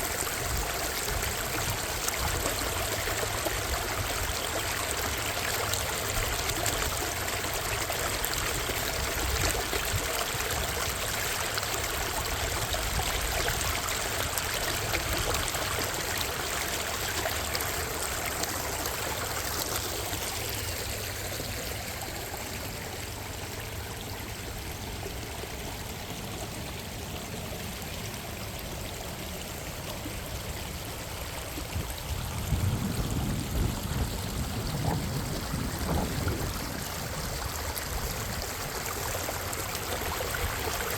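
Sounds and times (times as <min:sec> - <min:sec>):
stream water rushing: 0:00.0 - 0:40.9.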